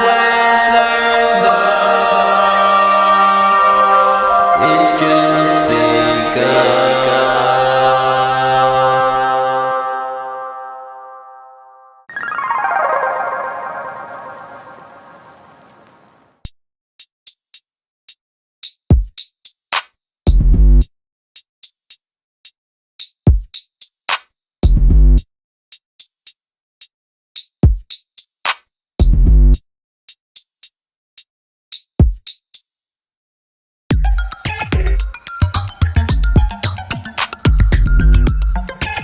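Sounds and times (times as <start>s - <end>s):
hip-hop drum machine beat: 24.6s - 24.8s, 31.8s - 32.4s, 33.9s - 39.0s
deep booming bass kicks: 24.7s - 25.2s, 29.1s - 29.6s.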